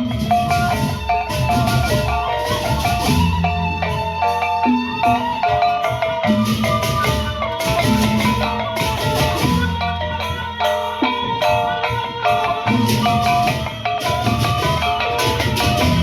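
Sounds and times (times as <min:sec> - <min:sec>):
drums: 0:00.0 - 0:16.0.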